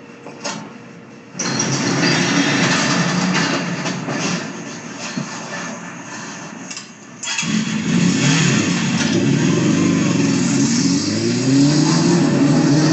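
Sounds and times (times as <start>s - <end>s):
motorcycle engine revving: 7.3s - 12.9s.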